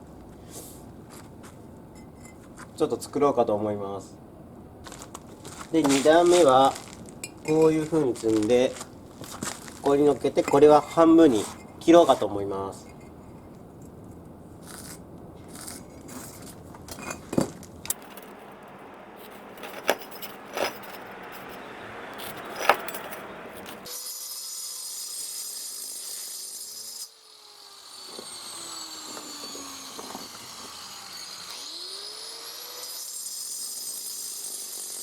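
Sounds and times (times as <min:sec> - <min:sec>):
faint sliding whining tones: 0:10.0 - 0:23.9
bricks clacking and knocking: 0:19.2 - 0:21.6, 0:22.2 - 0:23.9.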